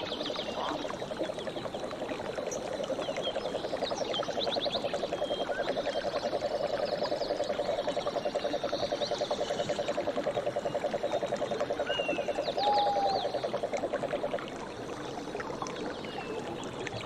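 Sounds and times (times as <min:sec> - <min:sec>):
frog trilling: 0:05.4 - 0:13.7.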